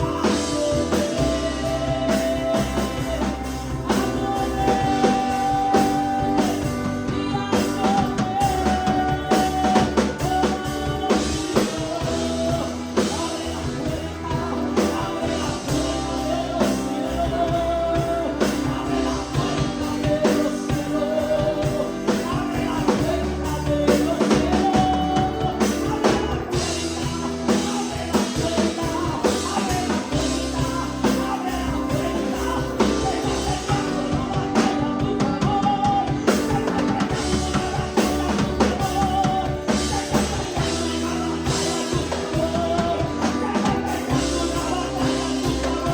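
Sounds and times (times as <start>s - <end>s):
person singing: 0.0s - 45.9s
worship band playing: 0.0s - 45.9s.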